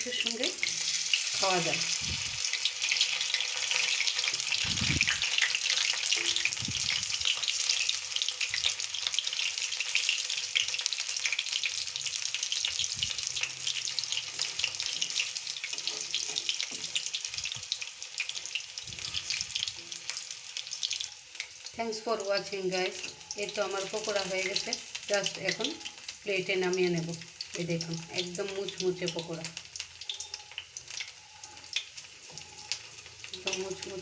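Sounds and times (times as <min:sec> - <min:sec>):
food deep-frying in oil: 0:00.0 - 0:34.0.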